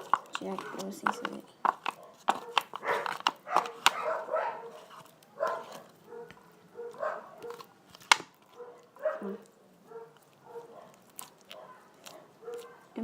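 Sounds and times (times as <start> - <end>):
dog barking: 1.9 - 7.7, 8.5 - 13.0.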